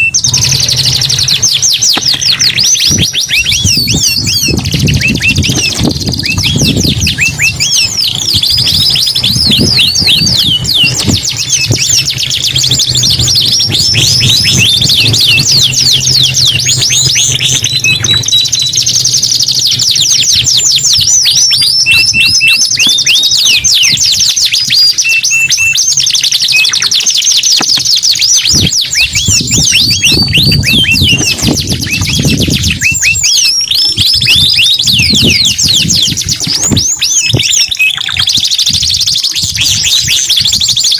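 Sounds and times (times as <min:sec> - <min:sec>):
canaries trilling: 0:00.0 - 0:40.9
short whistled notes: 0:13.0 - 0:19.3.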